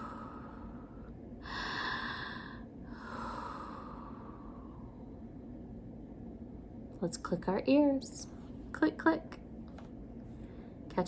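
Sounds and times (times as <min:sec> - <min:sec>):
woman breathing deeply: 0:00.0 - 0:05.4.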